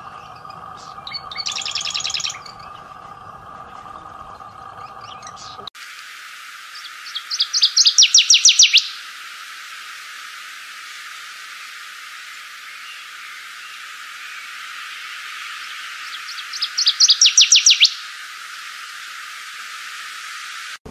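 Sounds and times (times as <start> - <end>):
songbird singing: 0.0 - 5.7, 6.6 - 9.2, 10.8 - 19.7
steady hiss: 5.4 - 20.9.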